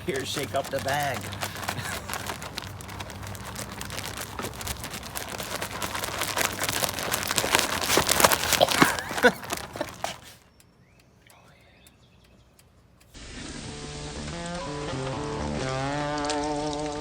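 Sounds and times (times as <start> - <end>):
bag of batter being shaken: 0.0 - 10.4.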